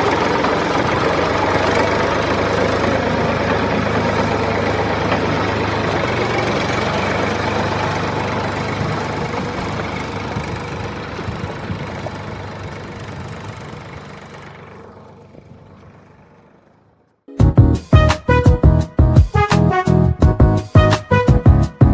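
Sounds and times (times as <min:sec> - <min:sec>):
engine-like running noise: 0:00.0 - 0:17.3.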